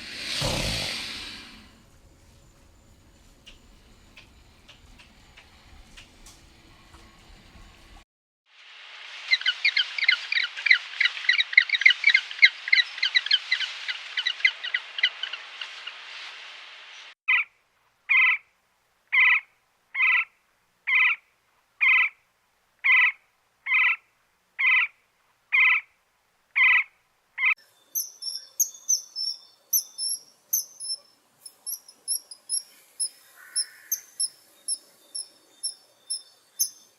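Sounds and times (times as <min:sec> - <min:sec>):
fast chirping chorus: 0:27.9 - 0:36.9
rapid high-pitched chirps: 0:28.0 - 0:36.9
short animal calls: 0:32.0 - 0:34.3.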